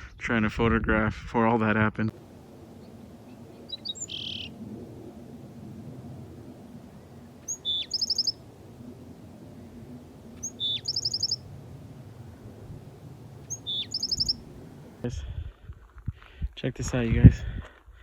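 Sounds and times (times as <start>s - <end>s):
sparrow singing with trill: 3.5s - 4.5s, 7.4s - 8.4s, 10.4s - 11.4s, 13.4s - 14.5s.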